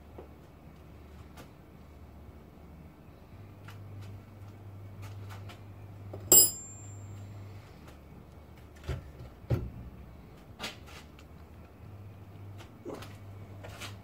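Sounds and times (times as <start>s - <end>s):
metal tools clinking and knocking: 6.3s - 7.0s.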